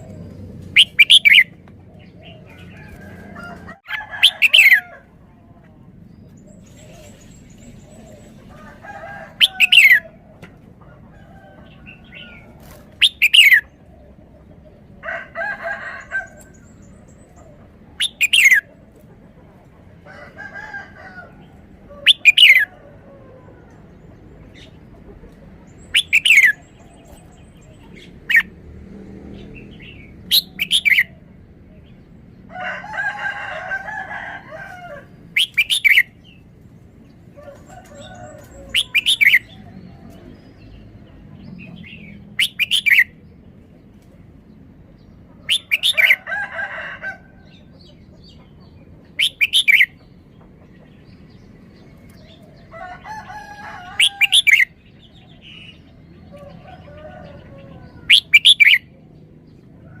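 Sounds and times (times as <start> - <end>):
harsh bird calls: 0.0 - 28.6, 29.2 - 43.6, 44.9 - 60.0
bulbul sharp song phrases: 0.7 - 1.6, 25.8 - 28.6, 49.0 - 50.0.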